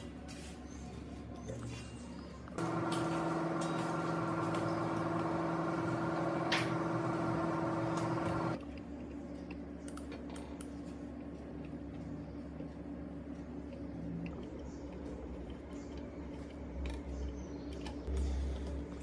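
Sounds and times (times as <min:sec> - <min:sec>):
small electric motor running: 0:02.6 - 0:08.6.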